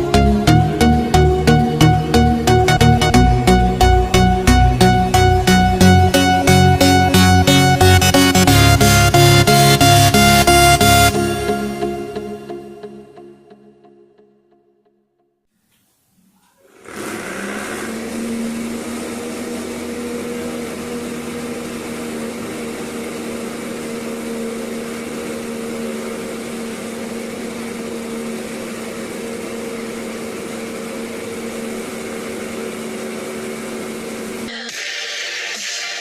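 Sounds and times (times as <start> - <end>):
vacuum cleaner motor humming: 16.6 - 34.8.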